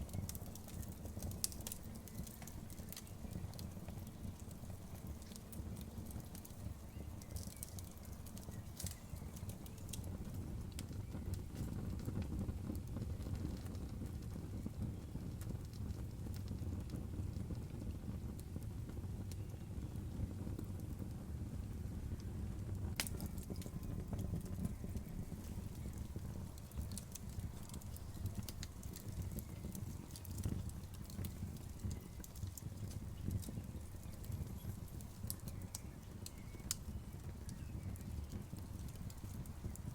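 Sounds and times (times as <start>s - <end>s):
bonfire crackling: 0.0s - 39.9s
low steady rumble: 17.2s - 39.9s.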